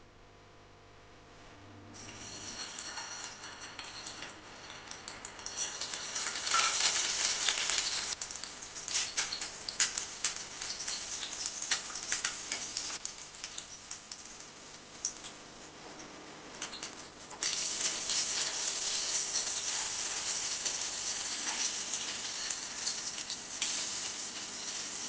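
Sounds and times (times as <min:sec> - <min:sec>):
food frying in hot oil: 0:01.9 - 0:25.0.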